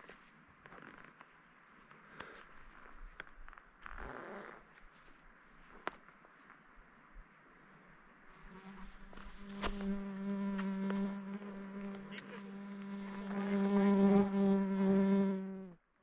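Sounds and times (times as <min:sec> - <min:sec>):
fly buzzing: 0:08.4 - 0:15.8.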